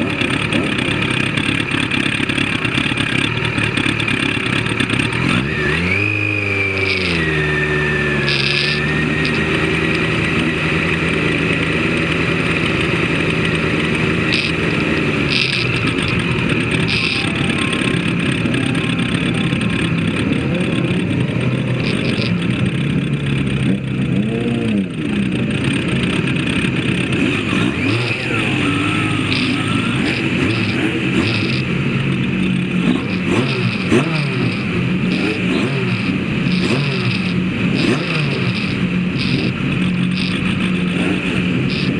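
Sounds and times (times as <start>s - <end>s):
racing vehicle engine revving: 0.0s - 41.9s.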